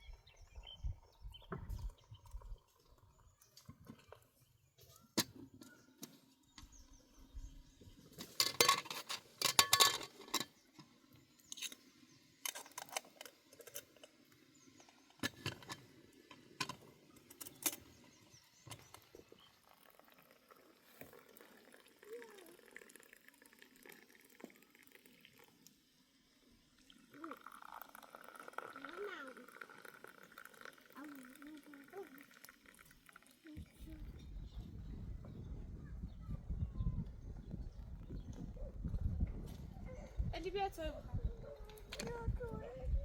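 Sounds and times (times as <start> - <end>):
hard objects clinking and knocking: 8.2 - 10.5.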